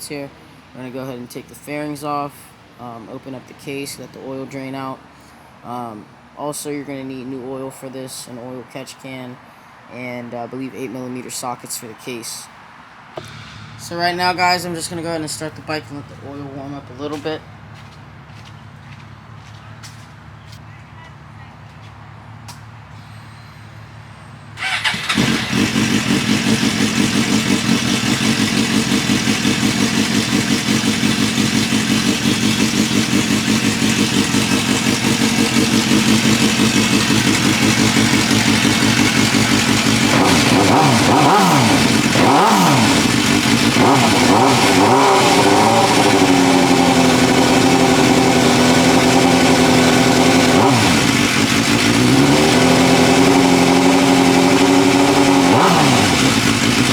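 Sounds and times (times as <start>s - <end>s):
motorcycle engine starting and idling: 13.2s - 17.4s, 24.6s - 56.9s.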